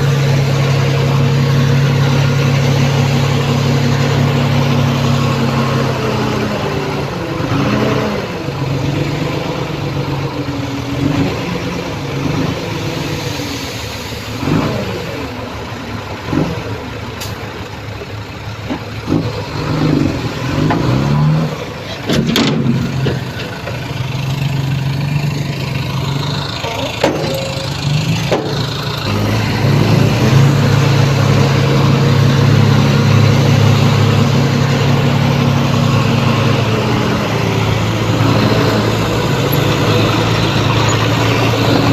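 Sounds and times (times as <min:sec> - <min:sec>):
heavy diesel machinery working: 0:00.0 - 0:41.9
sharp metallic clanks: 0:26.6 - 0:28.7.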